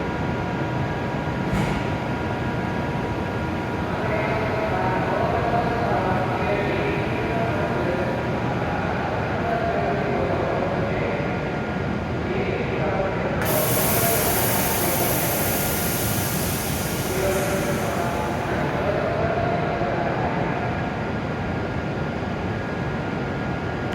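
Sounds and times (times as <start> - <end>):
train mechanical running noise: 0.0 - 23.9
high hiss: 13.4 - 18.9.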